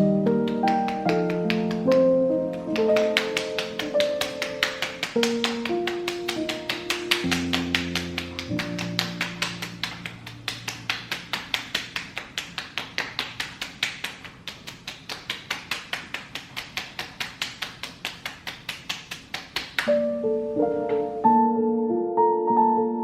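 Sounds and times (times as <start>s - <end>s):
background music: 0.0s - 11.1s, 19.9s - 23.0s
soft piano music: 0.0s - 11.7s, 19.9s - 23.0s
rapid even tapping: 0.3s - 19.9s.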